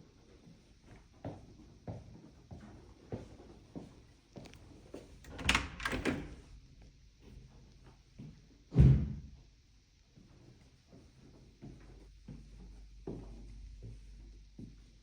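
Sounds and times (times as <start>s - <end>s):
door knocks and rattles: 5.3s - 6.4s
door shutting with a thud: 5.3s - 6.5s, 8.7s - 9.4s.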